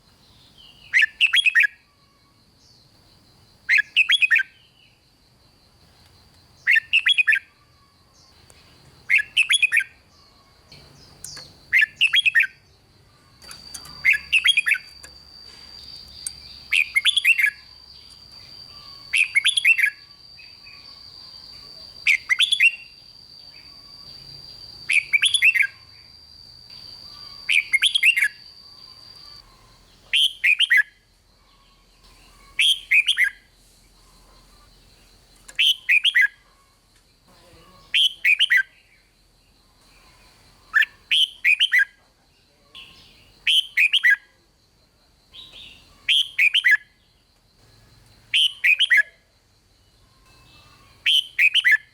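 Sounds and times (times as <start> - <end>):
bird whistled song: 0.2 - 2.9, 3.7 - 5.0, 6.6 - 34.6, 35.5 - 36.4, 37.9 - 39.1, 39.8 - 42.0, 42.8 - 44.3, 45.3 - 47.0, 47.8 - 49.2, 50.1 - 51.9
faint high whine: 5.6 - 30.2.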